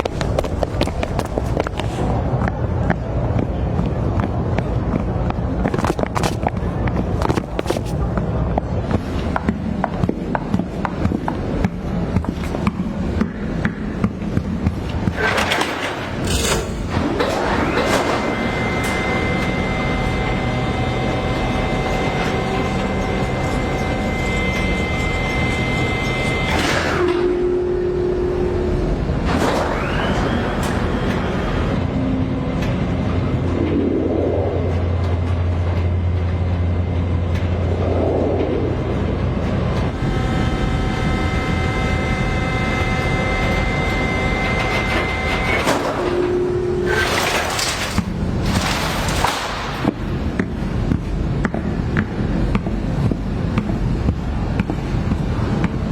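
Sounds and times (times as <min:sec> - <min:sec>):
mechanical drone with high whine: 0:00.0 - 0:55.9
low vehicle rumble: 0:27.3 - 0:45.4.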